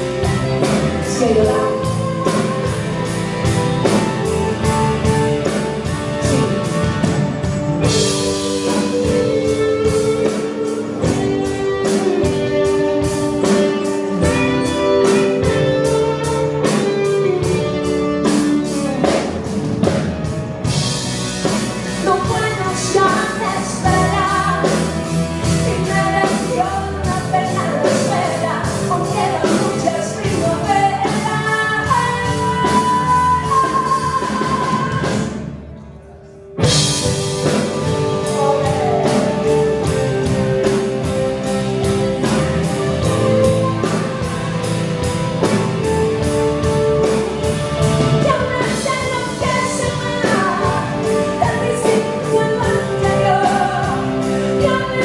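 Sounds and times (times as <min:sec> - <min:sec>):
woman singing: 0:00.0 - 0:04.0, 0:21.8 - 0:35.4, 0:37.4 - 0:41.2, 0:48.1 - 0:55.0
live band playing pop song: 0:00.0 - 0:35.7, 0:36.6 - 0:55.0.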